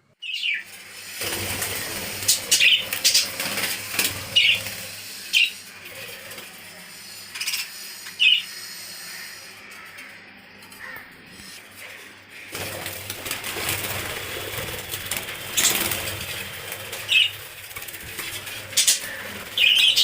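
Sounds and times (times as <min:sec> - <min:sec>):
wings fluttering: 0:00.2 - 0:20.0
budgerigars chirping: 0:02.2 - 0:03.4, 0:04.3 - 0:04.7, 0:08.2 - 0:08.5, 0:17.0 - 0:17.4, 0:18.7 - 0:20.0.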